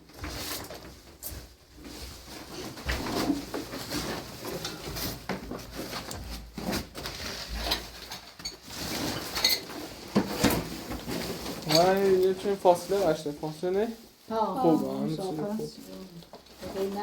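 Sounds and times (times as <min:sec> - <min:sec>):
objects knocking and clattering: 0:00.0 - 0:12.5.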